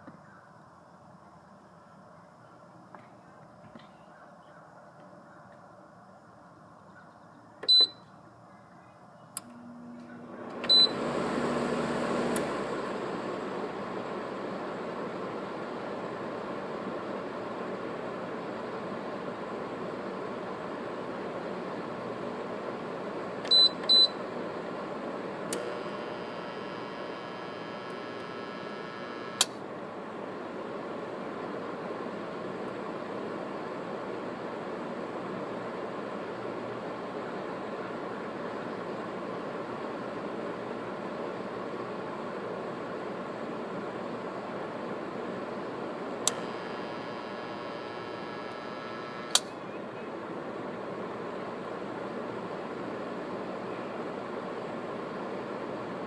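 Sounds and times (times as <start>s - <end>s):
air conditioner fan rush: 7.4s - 56.0s
control panel beeps: 7.7s - 8.0s, 10.6s - 11.0s, 23.5s - 24.2s
low compressor hum: 9.2s - 37.8s, 44.2s - 54.0s
compressor switch click: 25.5s - 29.6s, 46.2s - 49.6s
switch click: 29.4s - 29.6s, 46.2s - 46.5s, 49.2s - 49.5s.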